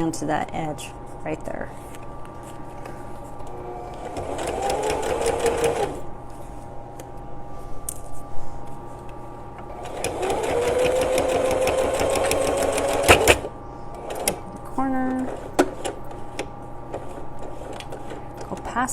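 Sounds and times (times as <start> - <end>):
sewing machine running: 3.2 - 6.2, 9.7 - 18.6.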